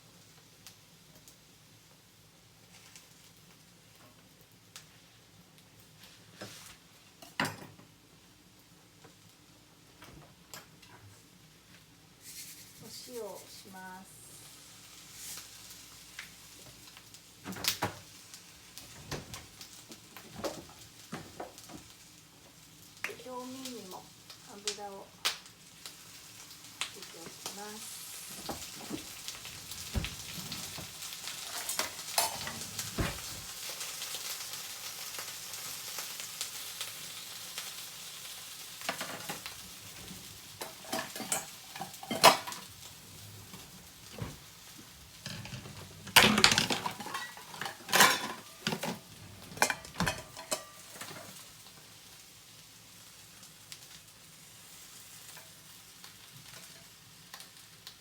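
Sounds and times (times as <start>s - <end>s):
eggplant frying in oil: 0.0s - 58.0s
utensil clattering against pan: 31.5s - 33.5s, 45.2s - 51.3s.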